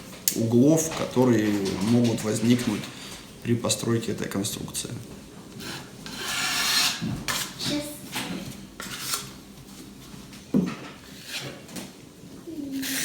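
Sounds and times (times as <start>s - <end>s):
hand tool scraping drywall: 5.6s - 7.7s, 8.8s - 9.3s, 11.1s - 11.7s, 12.8s - 13.0s.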